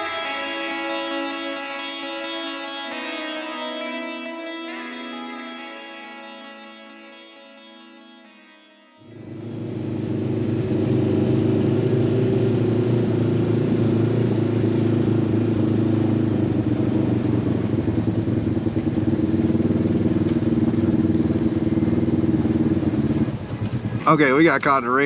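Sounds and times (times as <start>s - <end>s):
utility vehicle engine running: 9.0s - 25.0s.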